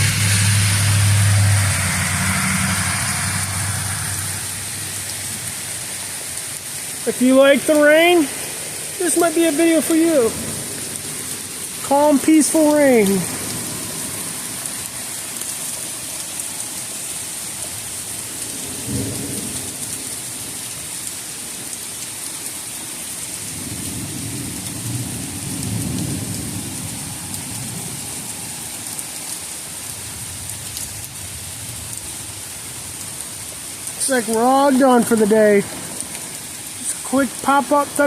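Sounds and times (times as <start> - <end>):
thunder rumbling: 0.0 - 11.8, 23.5 - 28.5
heavy rain pouring: 0.0 - 38.0.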